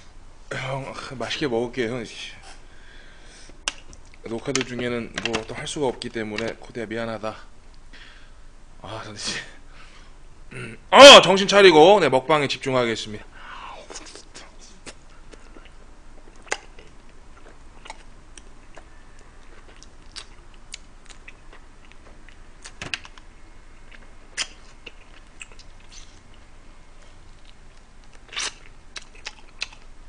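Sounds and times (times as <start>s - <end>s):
man chewing: 13.9s - 30.0s.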